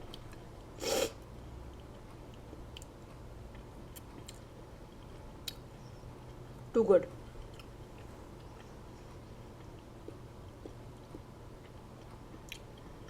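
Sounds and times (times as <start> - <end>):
person chewing: 7.4 - 8.7, 9.6 - 13.0.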